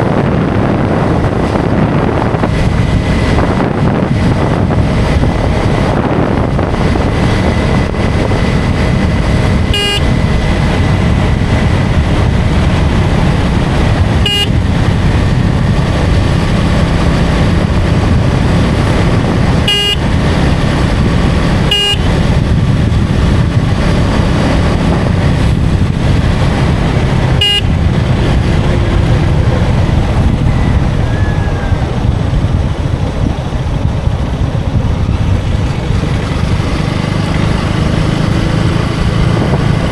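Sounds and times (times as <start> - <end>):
motorcycle engine running: 0.0 - 39.9
wind rush: 0.0 - 39.9
vehicle horn toots: 9.7 - 10.3, 13.9 - 15.0, 19.5 - 20.5, 21.5 - 22.5, 27.2 - 31.4.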